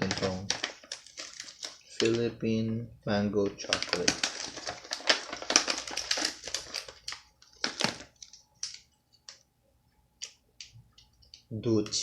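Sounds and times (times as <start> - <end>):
wrapper crinkling: 0.0 - 2.3, 3.6 - 9.4.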